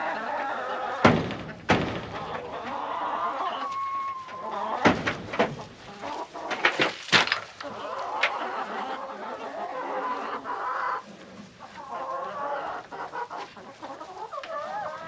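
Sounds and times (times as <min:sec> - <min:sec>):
chickens clucking: 0:00.0 - 0:15.0
sharp knocks and clatters: 0:01.0 - 0:02.2, 0:04.8 - 0:05.7, 0:06.4 - 0:07.6.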